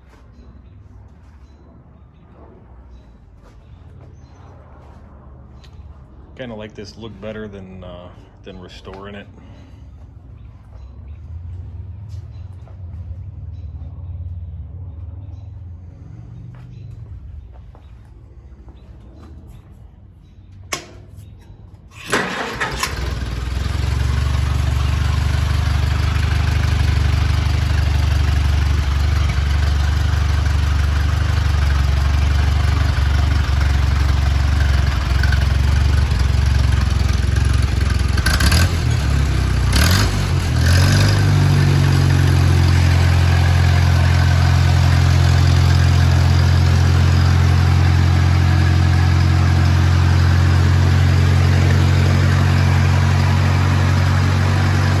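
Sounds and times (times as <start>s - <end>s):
tractor engine running: 20.6s - 55.0s.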